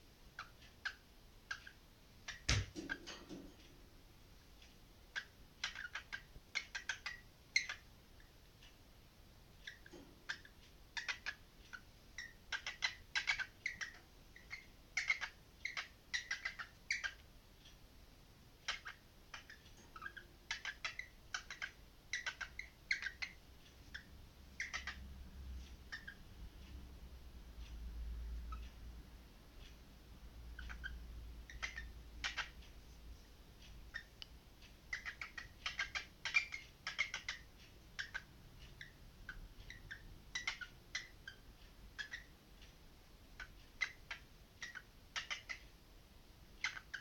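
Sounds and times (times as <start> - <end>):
parrot chirping: 0.4 - 3.3, 5.1 - 7.9, 9.6 - 17.2, 18.6 - 25.1, 25.8 - 26.3, 30.5 - 32.6, 33.9 - 34.2, 34.8 - 42.3, 43.3 - 45.8, 46.6 - 47.0.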